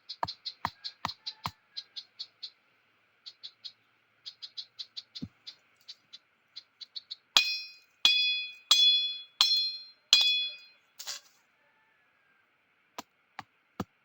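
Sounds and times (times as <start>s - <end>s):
sharp metallic strikes: 7.4s - 10.8s.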